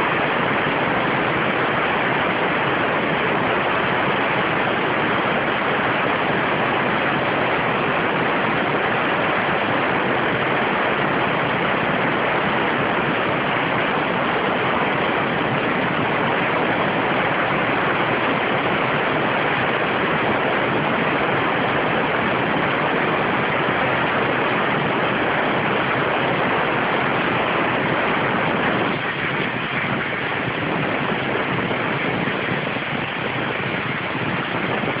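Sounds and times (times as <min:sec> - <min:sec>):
waterjet cutter hissing: 0:00.0 - 0:35.0.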